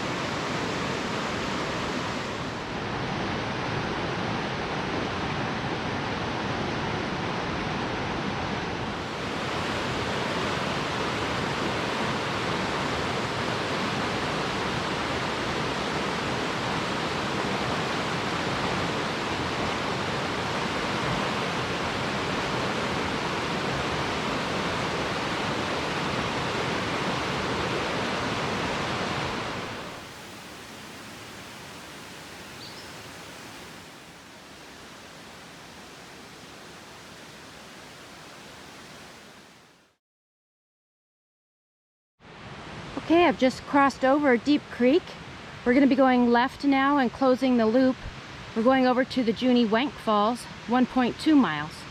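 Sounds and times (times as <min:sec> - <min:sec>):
mountain creek rushing: 0:00.0 - 0:39.8.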